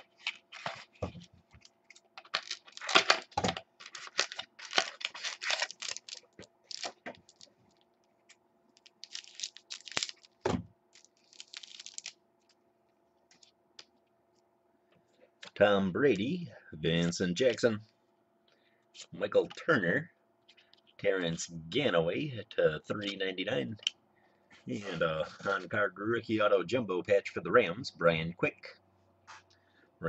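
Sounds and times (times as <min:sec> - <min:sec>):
card pack wrapper tearing: 0:01.8 - 0:07.5, 0:08.8 - 0:12.2.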